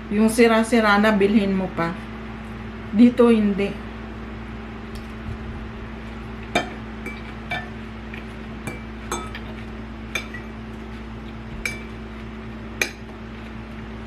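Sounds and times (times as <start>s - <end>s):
steady low hum: 0.0s - 14.0s
utensils clinking against a dish: 6.6s - 7.8s, 8.7s - 10.5s, 11.6s - 12.0s.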